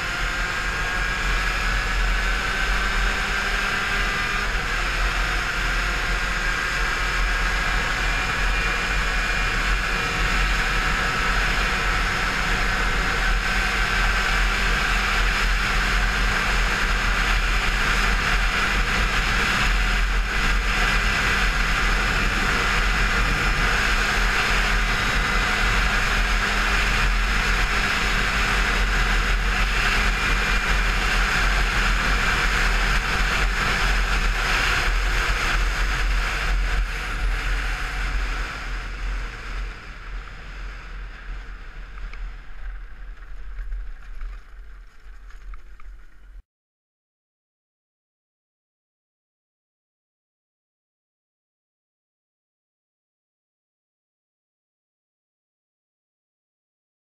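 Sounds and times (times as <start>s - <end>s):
motorbike engine at high revs: 0.0s - 43.8s
wind rush over microphone: 7.3s - 46.4s.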